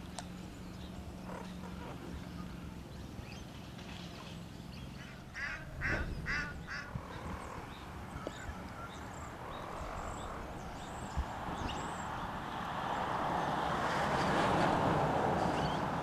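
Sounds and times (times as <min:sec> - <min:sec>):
bird giving loud calls: 0:05.3 - 0:07.7.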